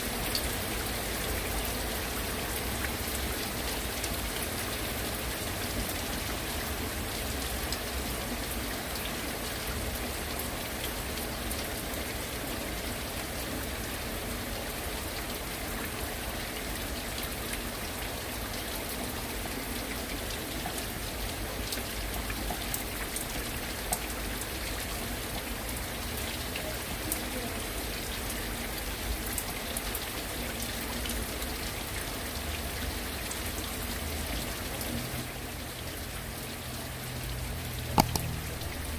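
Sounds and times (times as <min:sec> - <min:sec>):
heavy rain falling: 0:00.0 - 0:38.9
drops tapping a surface: 0:38.0 - 0:38.9.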